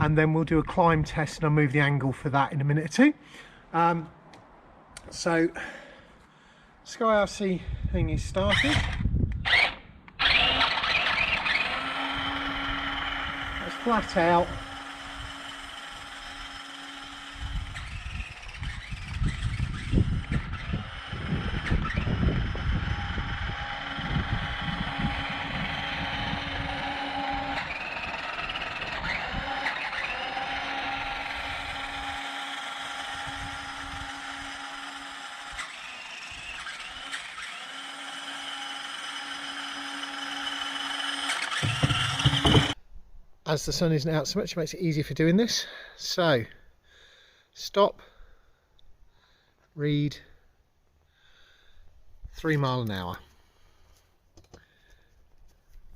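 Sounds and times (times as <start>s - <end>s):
electric motors whining: 8.4s - 42.8s.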